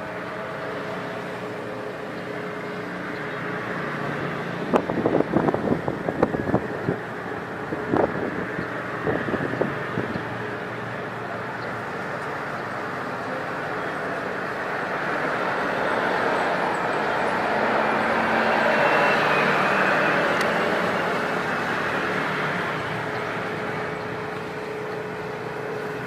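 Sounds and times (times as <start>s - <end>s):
jet airliner rushing roar: 0.0s - 26.0s.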